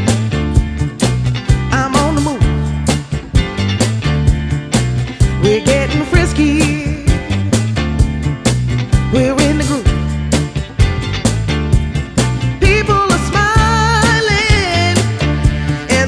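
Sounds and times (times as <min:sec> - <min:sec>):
pop soul song with drums and bass: 0:00.0 - 0:16.0
person singing: 0:01.7 - 0:02.9, 0:05.2 - 0:07.4, 0:09.1 - 0:10.1, 0:12.6 - 0:16.0.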